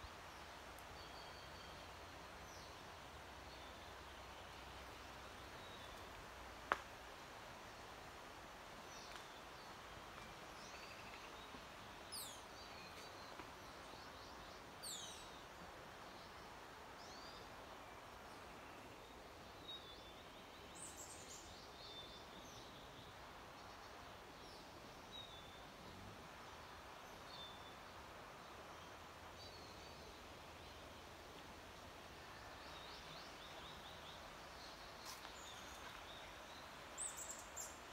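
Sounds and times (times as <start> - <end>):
faint steady hiss: 0.0 - 37.9.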